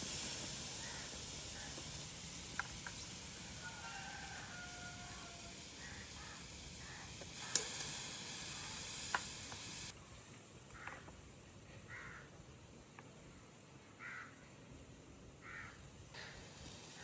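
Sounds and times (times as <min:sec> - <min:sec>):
food sizzling over fire: 0:00.0 - 0:11.4, 0:16.1 - 0:17.0.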